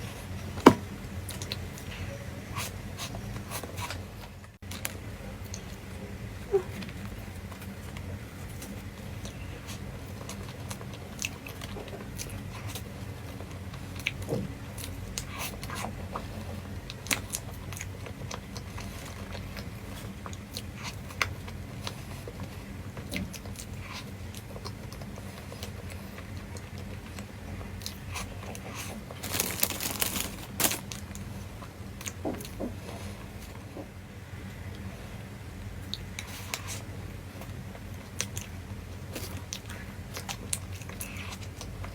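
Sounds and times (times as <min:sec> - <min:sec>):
person chewing crunchy food: 0:27.8 - 0:31.2
crackling: 0:29.2 - 0:31.0.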